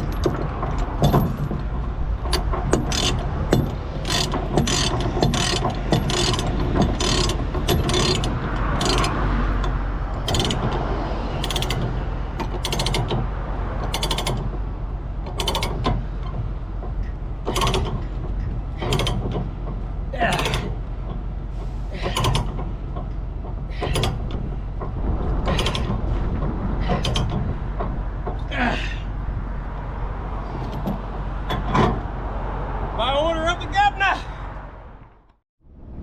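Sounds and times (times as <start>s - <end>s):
ratchet chain binder clicking: 0.0s - 14.6s, 15.2s - 21.2s, 21.9s - 24.5s
low engine hum: 0.0s - 36.0s.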